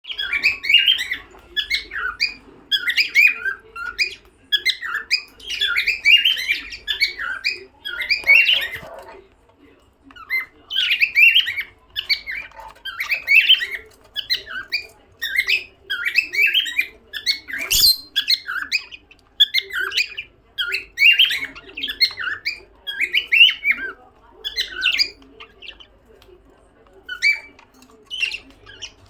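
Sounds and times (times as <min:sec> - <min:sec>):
cockatiel whistling: 0:17.6 - 0:18.3.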